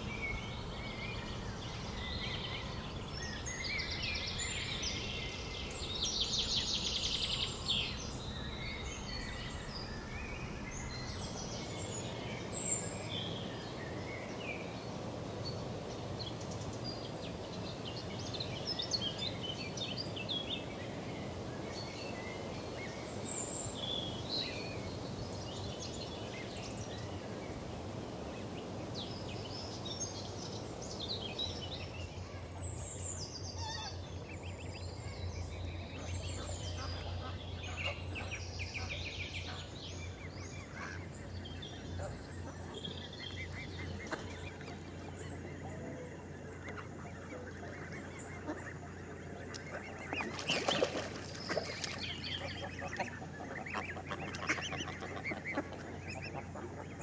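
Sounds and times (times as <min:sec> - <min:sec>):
low background noise: 0:00.0 - 0:57.0
birds calling and chirping: 0:29.0 - 0:57.0.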